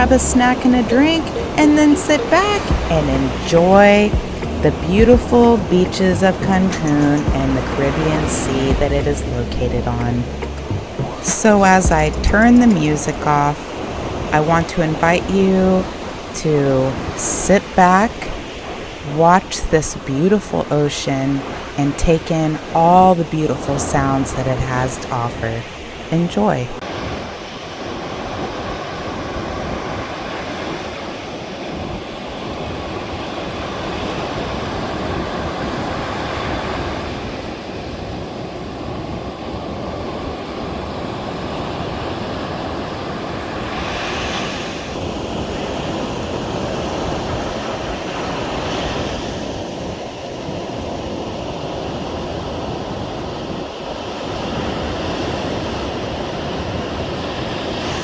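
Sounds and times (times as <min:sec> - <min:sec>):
surf crashing on beach: 0:00.0 - 0:58.0.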